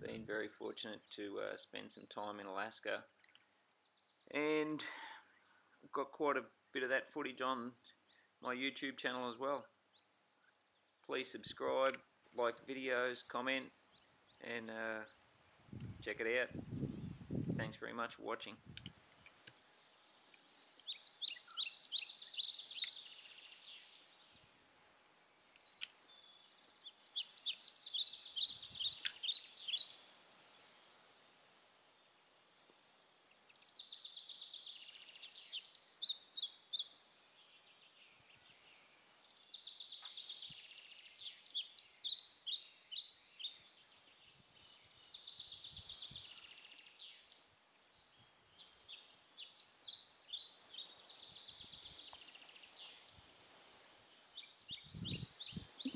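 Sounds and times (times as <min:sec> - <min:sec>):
bird singing high chirps: 0:00.0 - 0:31.1, 0:32.3 - 0:55.9.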